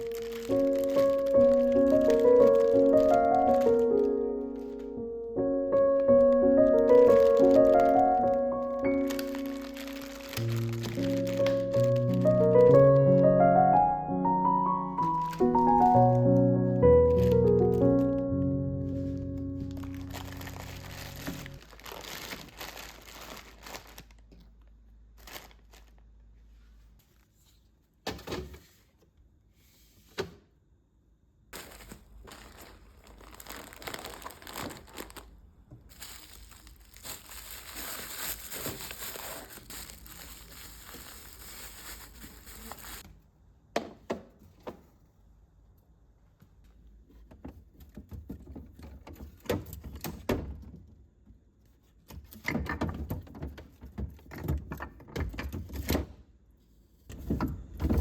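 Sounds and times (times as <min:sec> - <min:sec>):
plastic packaging crinkling: 0:00.0 - 0:26.3, 0:31.6 - 0:43.1
knocks and thuds of items moved: 0:18.9 - 0:22.7, 0:47.1 - 0:51.0, 0:57.1 - 0:58.0.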